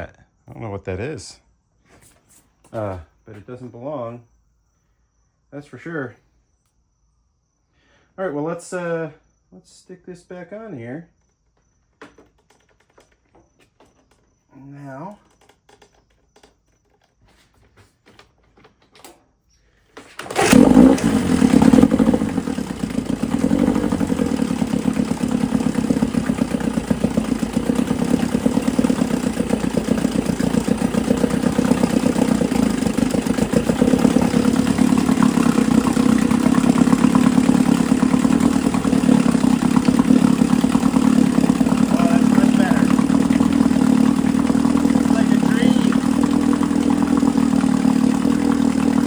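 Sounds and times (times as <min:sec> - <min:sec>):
outboard motor running: 0:20.2 - 0:49.0.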